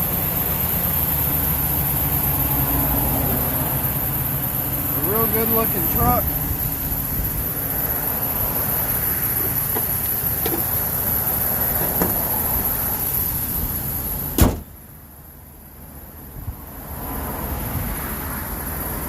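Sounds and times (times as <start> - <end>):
truck panel slamming shut: 11.8 - 12.3, 14.3 - 14.8.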